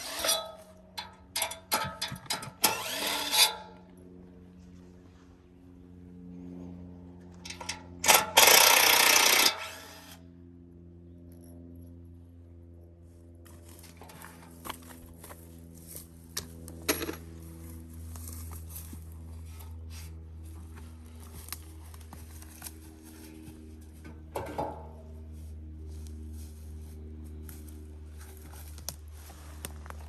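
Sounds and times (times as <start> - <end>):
chainsaw idling: 2.6 - 3.5, 7.5 - 10.1.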